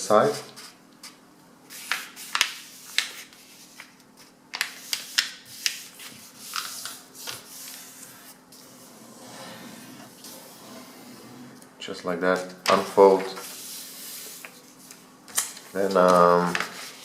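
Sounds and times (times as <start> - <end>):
paper rustling as folded: 1.7 - 8.8, 13.2 - 17.0.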